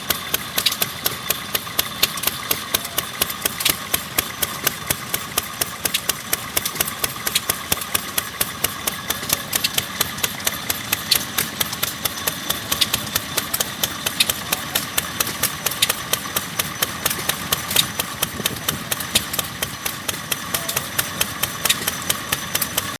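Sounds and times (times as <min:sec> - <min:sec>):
stationary engine clattering: 0:00.0 - 0:22.9.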